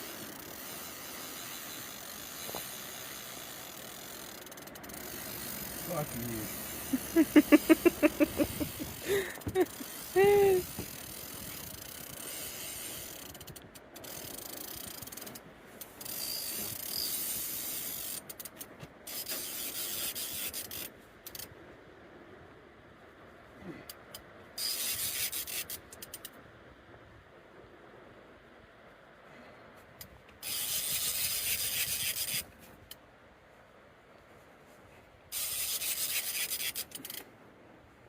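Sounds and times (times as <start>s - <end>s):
fishing reel ratcheting: 0.0s - 21.5s, 23.9s - 26.4s, 30.4s - 32.5s, 35.3s - 37.3s.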